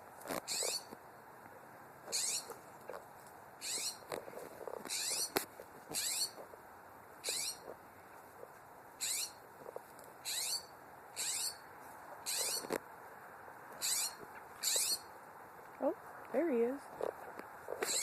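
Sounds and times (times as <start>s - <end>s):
bird scratchy call: 0.3s - 0.9s, 2.1s - 2.6s, 3.6s - 4.1s, 4.7s - 6.4s, 7.2s - 7.8s, 9.0s - 9.4s, 10.2s - 11.6s, 12.2s - 12.8s, 13.8s - 15.1s, 17.0s - 18.0s.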